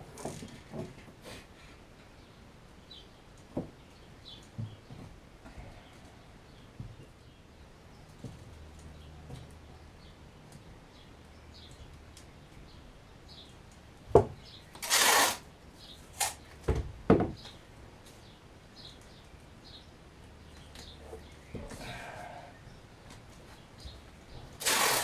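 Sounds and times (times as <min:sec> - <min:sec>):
scraping hiss: 0:24.6 - 0:25.0.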